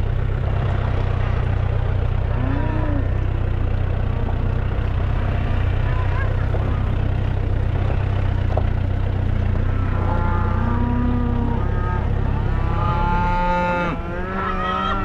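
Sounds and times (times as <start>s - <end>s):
vehicle engine idling: 0.0s - 15.0s
cattle mooing: 2.3s - 3.6s, 9.4s - 15.0s.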